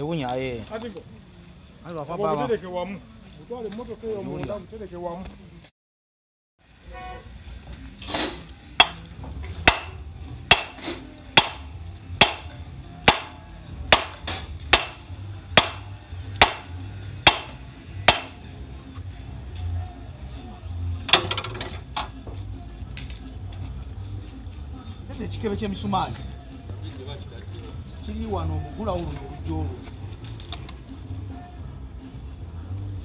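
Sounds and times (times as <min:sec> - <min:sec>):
hammer striking metal: 0:08.2 - 0:18.4.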